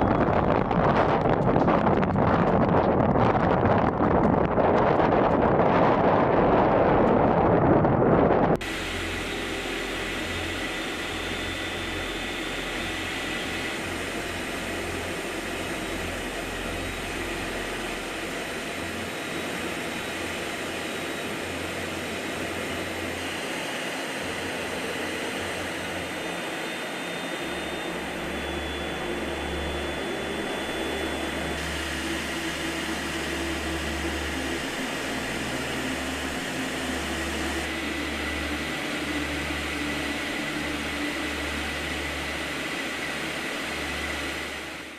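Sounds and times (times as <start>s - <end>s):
low hum: 0.0s - 44.9s
steady rushing noise: 0.0s - 44.9s.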